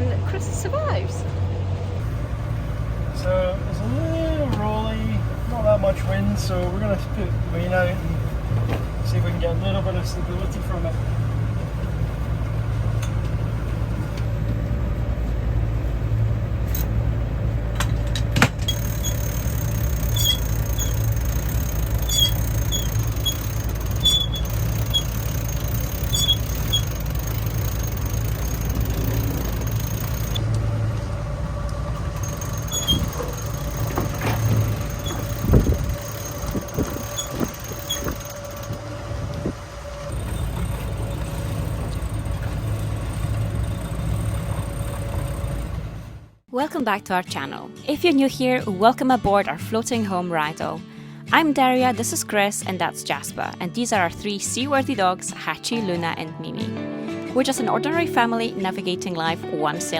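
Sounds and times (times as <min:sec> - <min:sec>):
boat engine drone: 0:00.0 - 0:46.4
high squeaks from boat gear: 0:18.6 - 0:30.4, 0:32.1 - 0:38.9, 0:40.0 - 0:45.8.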